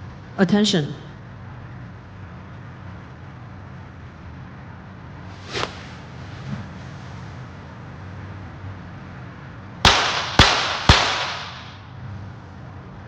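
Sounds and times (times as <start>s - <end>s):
pistol shots: 9.9s - 11.8s.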